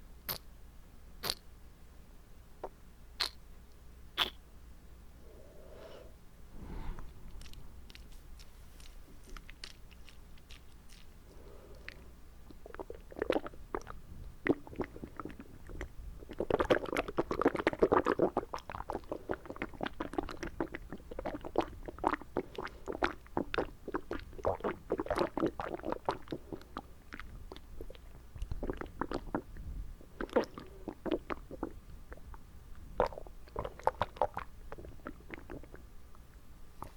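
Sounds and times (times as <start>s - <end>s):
tongue clicks and wet smacks: 7.4s - 14.6s.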